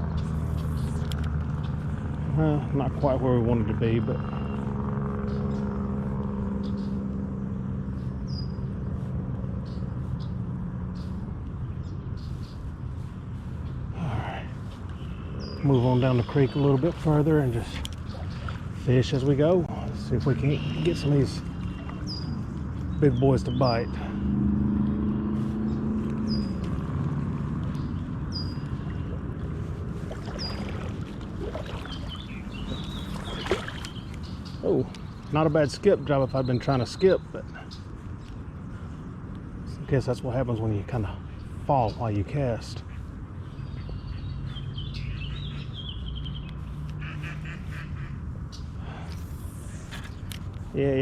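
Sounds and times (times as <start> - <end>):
steady engine hum: 0.0 - 51.0
bird chirping: 4.1 - 7.1, 7.9 - 24.2, 27.6 - 39.0, 41.1 - 50.6
person wading through water: 12.3 - 22.9, 24.7 - 35.2.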